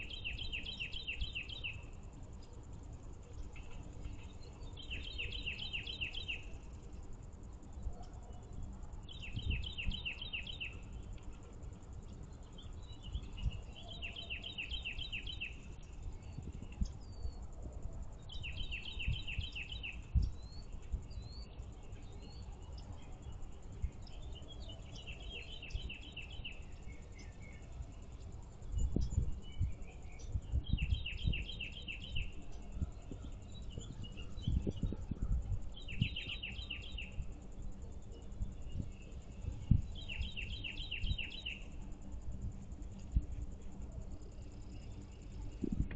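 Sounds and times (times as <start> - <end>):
songbird singing: 0.0 - 45.9.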